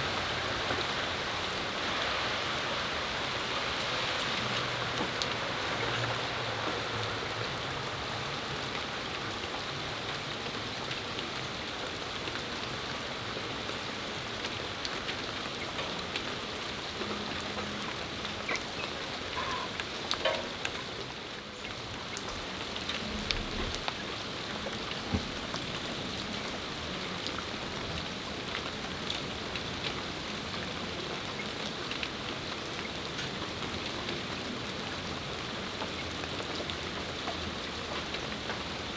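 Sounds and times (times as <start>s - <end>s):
steady rain on a patio: 0.0s - 38.9s.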